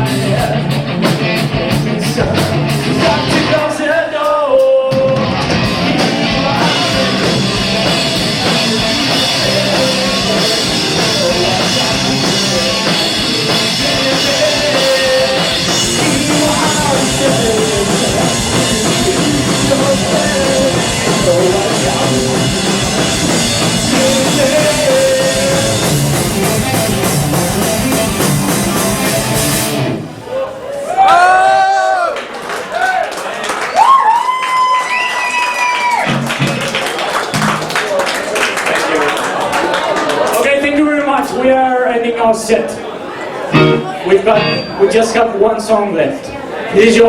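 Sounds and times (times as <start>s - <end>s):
electric guitar: 0.0s - 3.7s, 4.9s - 30.2s, 43.5s - 44.8s
drum kit: 0.0s - 3.8s, 4.5s - 30.2s, 35.9s - 37.8s, 43.6s - 44.8s
rock band playing: 0.0s - 30.3s, 35.8s - 37.9s, 43.4s - 45.4s.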